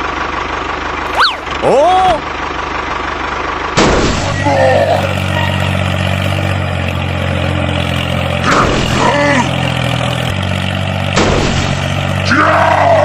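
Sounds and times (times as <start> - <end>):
tractor motor droning: 0.0 - 13.0
short high squeak: 1.1 - 1.6.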